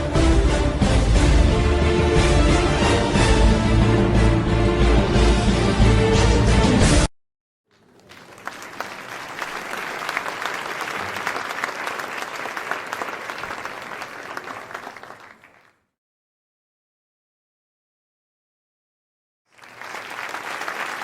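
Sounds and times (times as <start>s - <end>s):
crowd applause: 7.7s - 15.8s, 19.5s - 21.0s.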